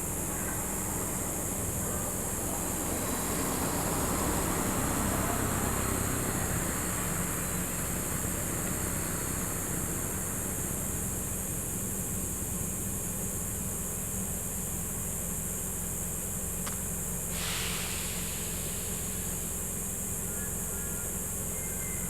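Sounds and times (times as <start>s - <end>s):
background hiss: 15.4s - 22.0s
brief rush of hiss: 17.3s - 20.0s.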